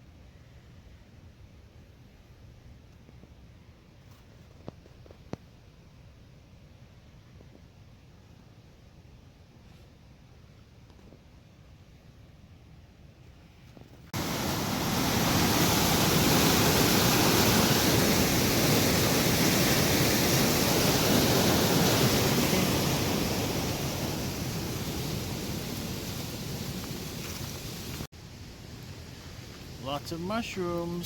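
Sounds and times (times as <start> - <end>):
river water rushing: 14.2 - 28.1.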